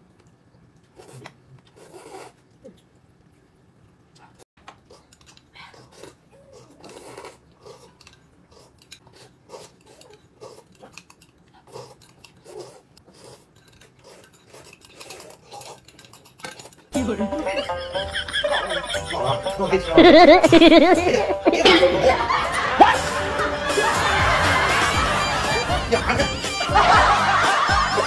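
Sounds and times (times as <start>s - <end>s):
person chewing food: 4.6s - 17.0s.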